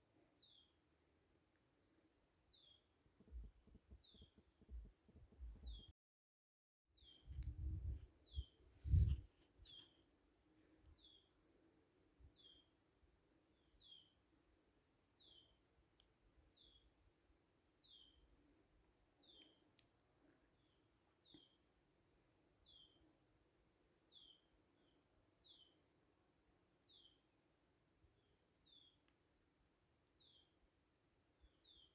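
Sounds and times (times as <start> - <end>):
faint outdoor background noise: 7.0 - 31.9.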